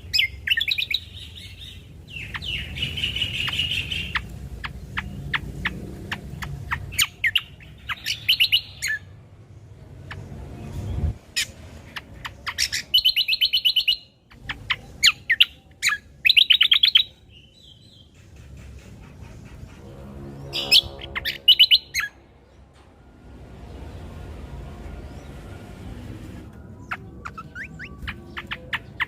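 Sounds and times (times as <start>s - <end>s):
bird calling with rattling trills: 0.0s - 9.1s, 11.3s - 22.2s.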